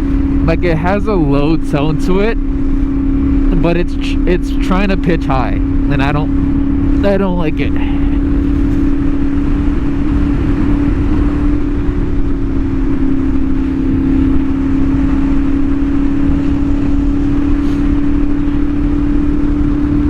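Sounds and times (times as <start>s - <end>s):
motorcycle engine running: 0.0s - 20.0s
rushing wind: 0.0s - 20.0s.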